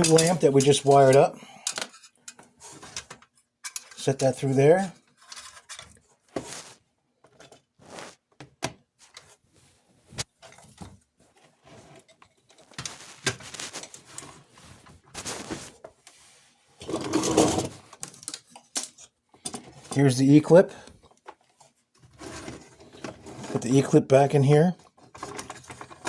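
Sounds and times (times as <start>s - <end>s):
metal parts clicking and tapping: 0.0s - 4.3s.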